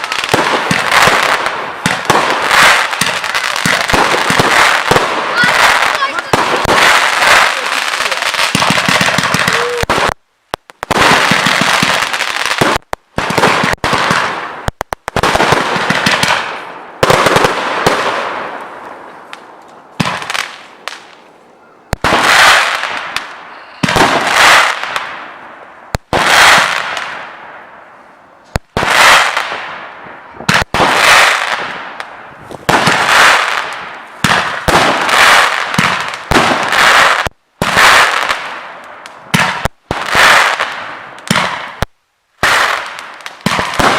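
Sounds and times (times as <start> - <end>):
fireworks bangs: 0.0 - 43.9.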